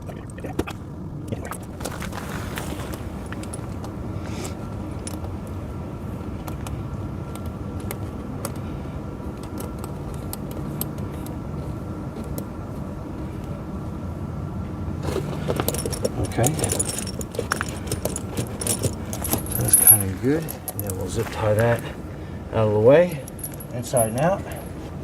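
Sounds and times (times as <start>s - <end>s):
snow chain links clinking: 1.8s - 3.8s, 15.4s - 21.9s, 23.2s - 24.8s
tractor engine idling: 15.0s - 22.4s.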